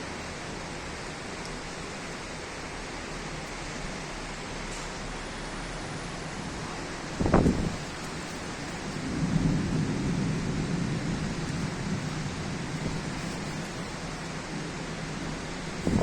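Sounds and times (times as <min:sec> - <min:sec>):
heavy rain hissing: 0:00.0 - 0:16.0
thunder rumbling: 0:07.1 - 0:16.0.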